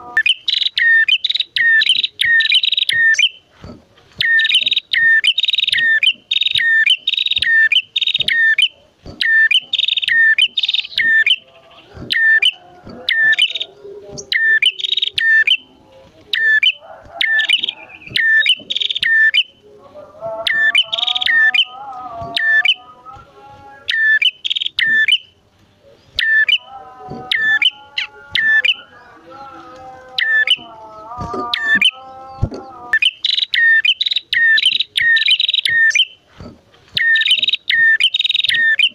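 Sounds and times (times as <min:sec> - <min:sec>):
lower warbling bird call: 0:00.0 - 0:03.5, 0:04.2 - 0:19.6, 0:20.4 - 0:22.9, 0:23.8 - 0:25.4, 0:26.1 - 0:29.4, 0:30.2 - 0:36.2, 0:36.9 - 0:38.9
sharp repeated bird chirps: 0:00.0 - 0:03.5, 0:04.2 - 0:15.7, 0:16.3 - 0:19.6, 0:20.5 - 0:22.8, 0:23.9 - 0:25.4, 0:26.1 - 0:26.7, 0:27.3 - 0:28.9, 0:31.4 - 0:36.2, 0:37.0 - 0:38.9.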